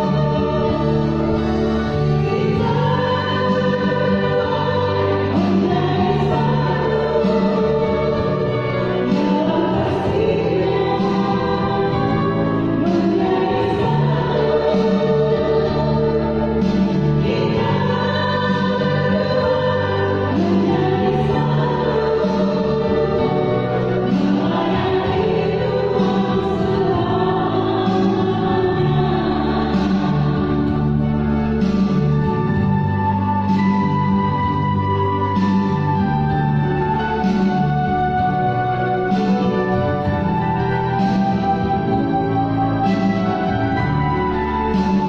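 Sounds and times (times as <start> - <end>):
choir singing in harmony: 0.0 - 45.0.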